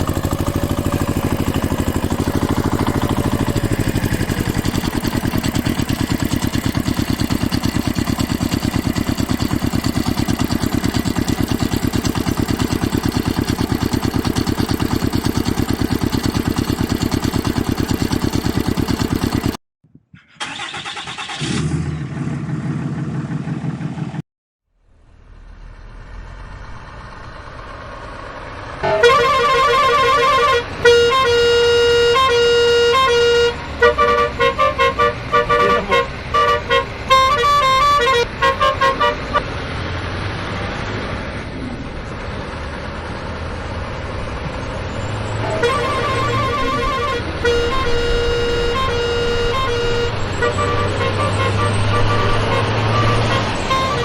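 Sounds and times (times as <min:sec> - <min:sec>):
loud horn tones: 0:00.0 - 0:19.6, 0:28.8 - 0:39.4, 0:45.2 - 0:54.0
small engine running: 0:00.0 - 0:19.6, 0:27.6 - 0:41.2, 0:41.8 - 0:54.0.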